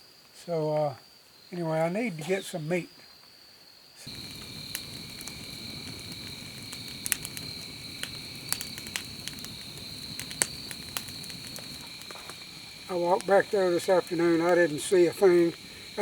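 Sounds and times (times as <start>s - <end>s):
insect chorus trilling: 0.4s - 16.0s
sharp crackles and pops: 4.0s - 16.0s.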